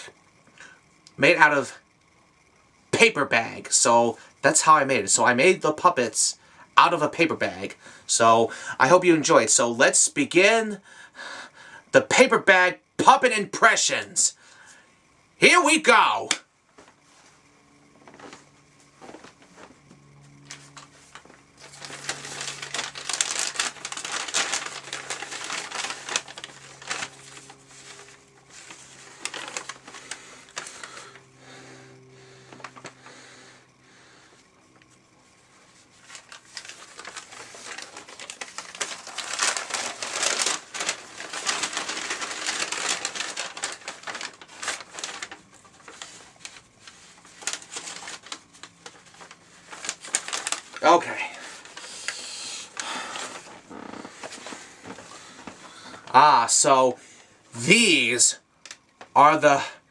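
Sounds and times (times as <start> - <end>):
paper bags crinkling: 20.5 - 31.6, 32.2 - 33.4, 35.8 - 56.6.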